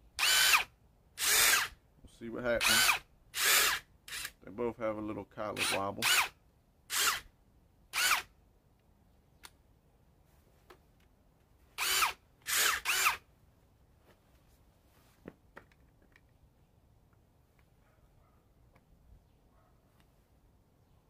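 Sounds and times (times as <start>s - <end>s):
impact driver motor spinning: 8.0s - 8.3s, 11.8s - 13.2s.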